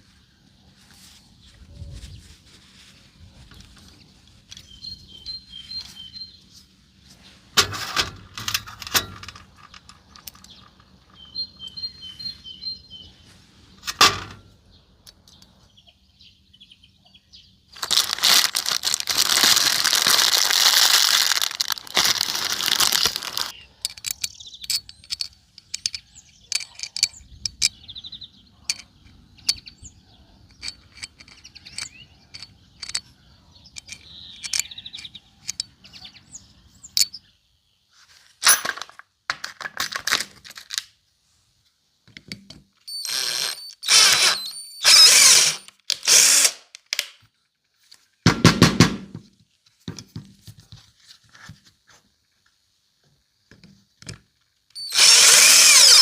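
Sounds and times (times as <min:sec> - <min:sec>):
faint birds chirping: 0:00.0 - 0:07.6, 0:09.3 - 0:13.8, 0:14.5 - 0:19.0, 0:21.2 - 0:38.4
small metal parts clicking: 0:07.8 - 0:11.4, 0:17.8 - 0:27.8, 0:28.7 - 0:35.7, 0:42.2 - 0:47.2, 0:54.7 - 0:56.0.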